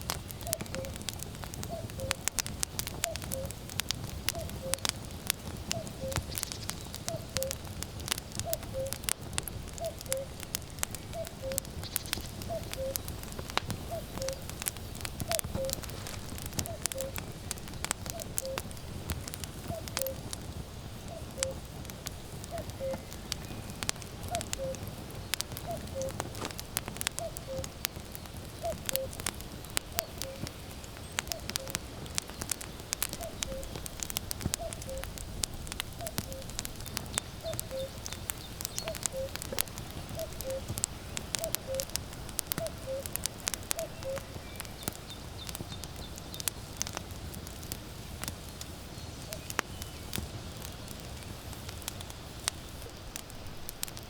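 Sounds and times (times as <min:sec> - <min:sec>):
firewood crackling and popping: 0:00.0 - 0:54.0
cuckoo calling: 0:00.4 - 0:01.0, 0:01.6 - 0:02.3, 0:03.0 - 0:03.6, 0:04.3 - 0:04.9, 0:05.6 - 0:07.7, 0:08.4 - 0:09.1, 0:09.7 - 0:18.9, 0:19.5 - 0:20.3, 0:21.0 - 0:21.7, 0:22.4 - 0:35.2, 0:36.0 - 0:36.6, 0:37.2 - 0:45.8.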